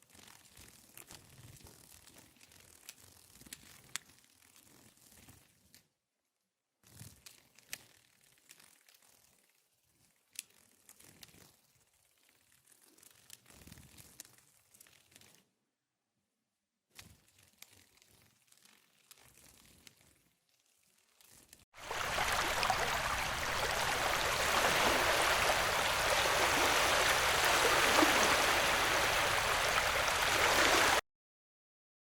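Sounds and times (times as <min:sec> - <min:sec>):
running water rushing: 0:21.8 - 0:31.0.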